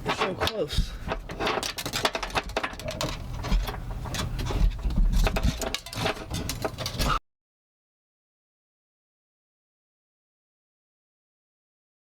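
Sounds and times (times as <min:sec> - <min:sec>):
clicks and knocks of hand work: 0:00.0 - 0:07.2.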